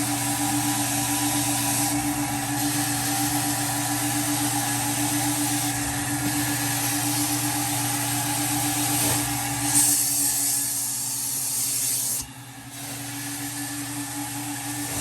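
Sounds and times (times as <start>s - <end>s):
carpet extractor motors humming: 0.0s - 15.0s
spray and suction hiss: 5.2s - 13.4s.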